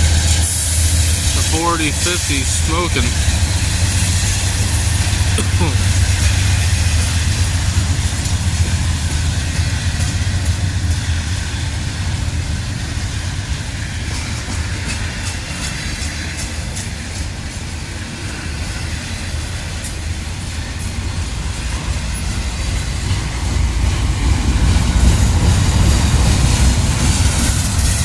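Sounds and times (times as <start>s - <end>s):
locomotive engine rumbling: 0.0s - 16.4s.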